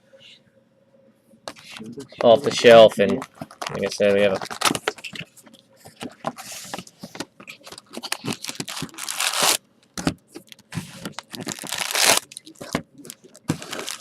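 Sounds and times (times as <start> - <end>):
packaging crinkling and rustling: 2.4 - 5.3, 6.0 - 14.0
packaging tearing: 3.5 - 5.0, 7.7 - 9.6, 10.5 - 14.0.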